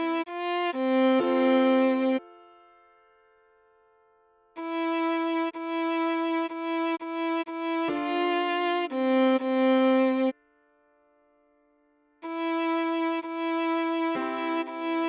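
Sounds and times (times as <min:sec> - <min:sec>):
solo viola melody: 0:00.0 - 0:02.5, 0:04.6 - 0:10.4, 0:12.2 - 0:15.0.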